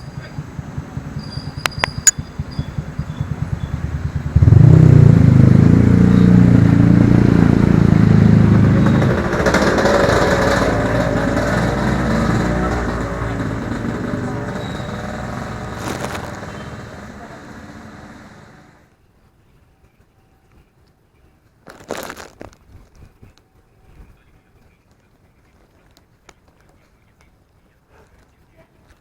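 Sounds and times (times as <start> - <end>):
motorbike engine: 0.0 - 18.8.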